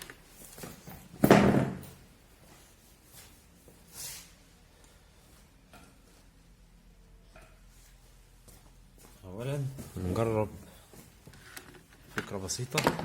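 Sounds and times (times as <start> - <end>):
soft scrape: 2.6 - 4.6.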